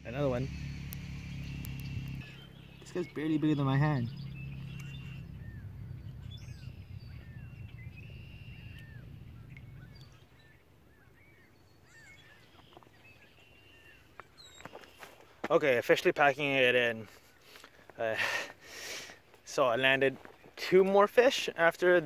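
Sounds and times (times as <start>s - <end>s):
low rumble: 0.0s - 10.3s
birds chirping: 0.0s - 22.0s
thin bird whistles: 4.1s - 14.7s.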